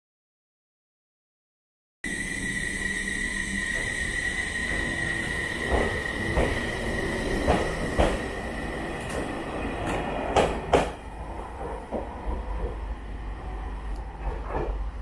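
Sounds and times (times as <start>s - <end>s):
high steady whine: 2.0s - 7.6s
train rumbling on rails: 2.1s - 15.0s
wheels clacking over rail joints: 7.3s - 8.4s.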